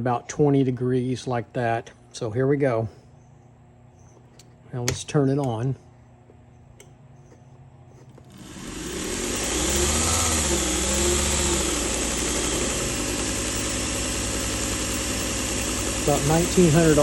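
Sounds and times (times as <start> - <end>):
belt hissing: 8.2 - 17.0
belt sander motor running: 8.2 - 17.0.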